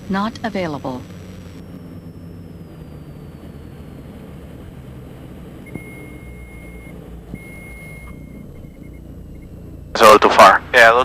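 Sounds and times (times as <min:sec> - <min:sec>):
aircraft engines droning: 0:00.0 - 0:11.0
high-pitched warning tone: 0:05.6 - 0:09.6.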